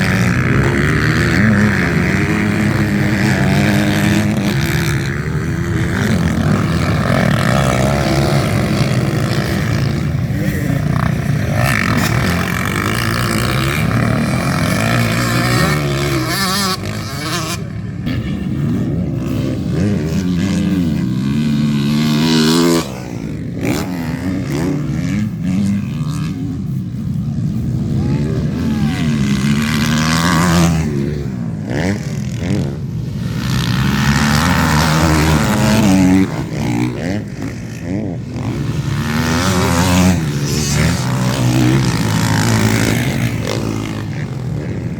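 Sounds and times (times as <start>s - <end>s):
motocross bike engines revving: 0.0s - 44.9s.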